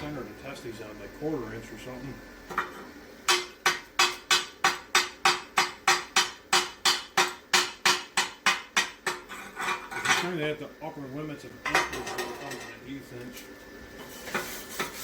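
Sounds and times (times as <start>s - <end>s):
hammer tapping on steel: 3.3s - 9.3s.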